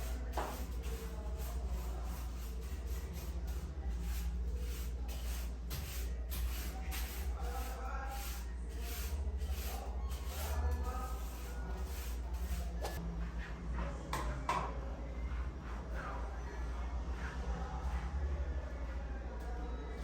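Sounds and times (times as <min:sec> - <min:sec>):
rubbing strokes on a surface: 0:00.0 - 0:13.5.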